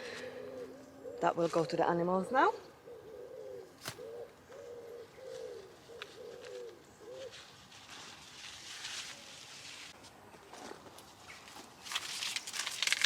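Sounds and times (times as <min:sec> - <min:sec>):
dove cooing: 0:00.0 - 0:01.4, 0:02.6 - 0:07.4
rustling: 0:03.8 - 0:13.0.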